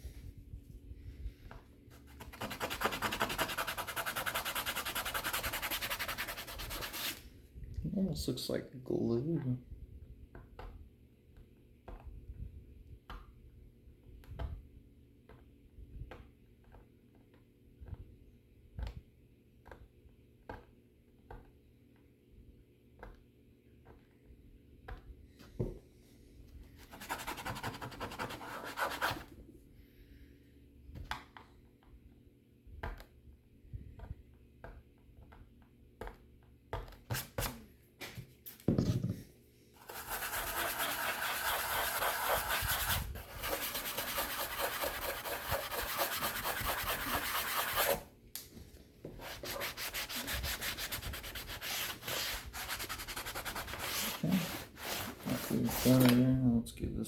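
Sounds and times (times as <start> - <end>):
quick steady rubbing: 1.9 - 7.2, 26.8 - 29.3, 39.8 - 48.1, 49.2 - 56.0.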